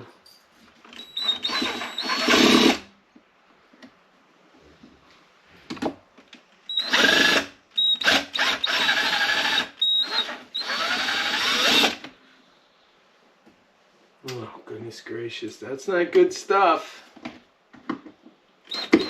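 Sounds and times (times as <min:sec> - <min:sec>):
power drill motor whine: 0:01.0 - 0:02.9, 0:06.7 - 0:12.0, 0:18.7 - 0:19.0.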